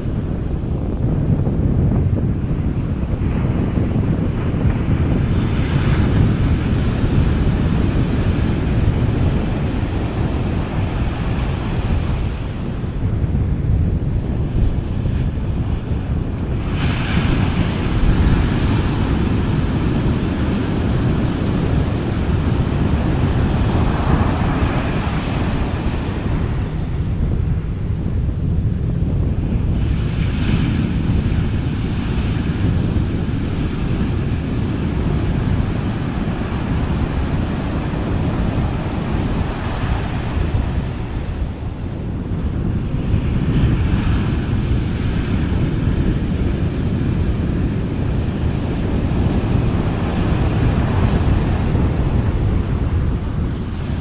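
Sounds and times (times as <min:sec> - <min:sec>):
wind buffeting microphone: 0:00.0 - 0:54.0
sea waves breaking on beach: 0:02.3 - 0:54.0.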